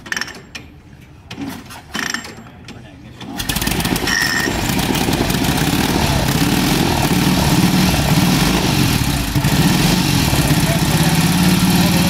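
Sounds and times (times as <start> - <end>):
motorcycle engine starting and idling: 3.2 - 12.0.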